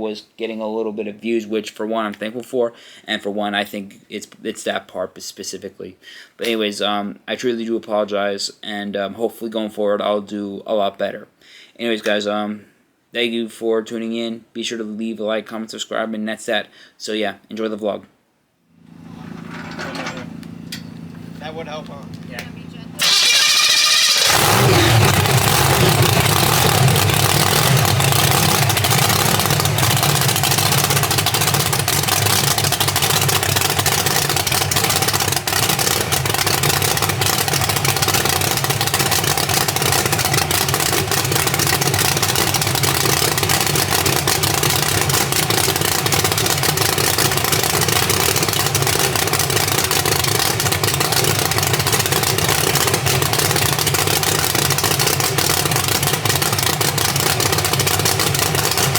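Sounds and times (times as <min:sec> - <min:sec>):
engine idling loudly: 0:18.9 - 0:58.9.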